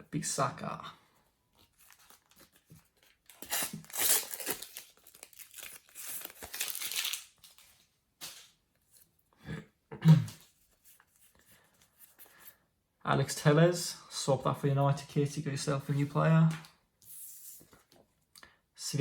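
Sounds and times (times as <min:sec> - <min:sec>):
paper packet tearing and rustling: 0:01.6 - 0:08.6.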